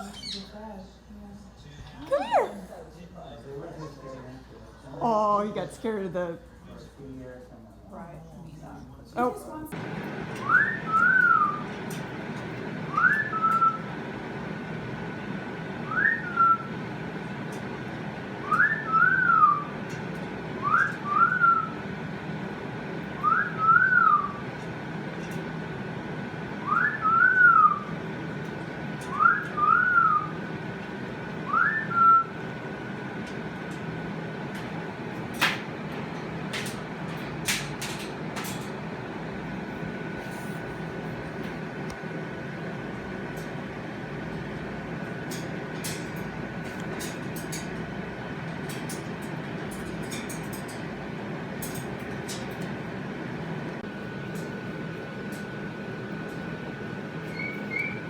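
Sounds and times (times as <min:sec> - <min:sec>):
faint high tone: 0:02.0 - 0:02.7
whistled phrase: 0:18.5 - 0:19.6, 0:23.2 - 0:24.4, 0:26.6 - 0:27.8, 0:29.1 - 0:30.3, 0:31.5 - 0:32.3.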